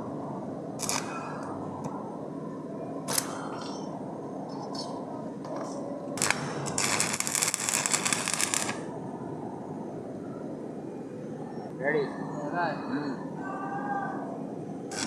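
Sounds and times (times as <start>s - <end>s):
welding arc crackling: 0.8s - 1.5s, 3.1s - 3.8s, 5.5s - 8.9s.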